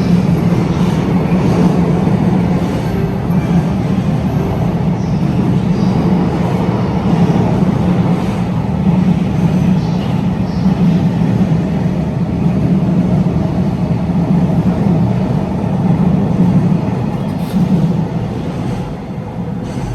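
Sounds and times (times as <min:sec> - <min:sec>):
train wheels rolling on rails: 0:00.0 - 0:19.9.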